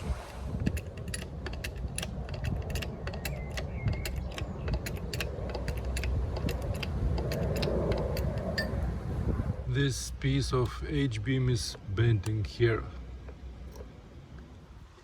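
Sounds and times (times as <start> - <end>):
low rumble: 0.0 - 11.6
sharp metal clicks and creaks: 0.5 - 8.9, 11.6 - 15.0.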